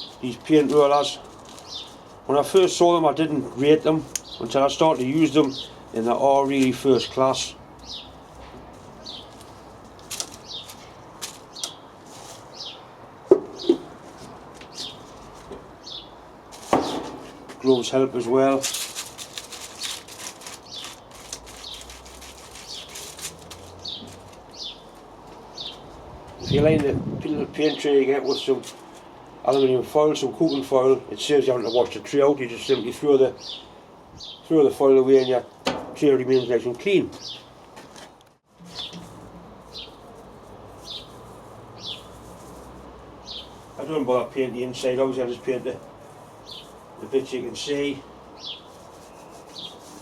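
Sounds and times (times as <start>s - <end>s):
fine steady crackling: 0.0s - 2.8s, 17.7s - 25.0s, 38.4s - 50.0s
bird chirping: 1.4s - 2.0s, 4.1s - 4.6s, 7.8s - 8.2s, 9.0s - 9.4s, 10.3s - 11.9s, 12.5s - 13.9s, 15.8s - 16.2s, 19.7s - 26.6s, 32.7s - 34.5s, 37.2s - 37.6s, 38.6s - 42.2s, 43.2s - 43.7s, 46.4s - 46.8s, 47.8s - 50.0s.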